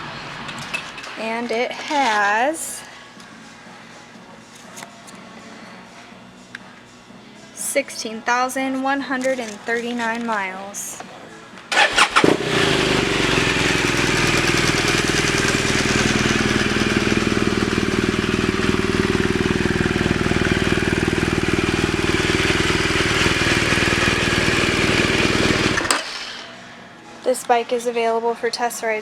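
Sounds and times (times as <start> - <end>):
motorcycle engine idling: 11.7 - 25.9.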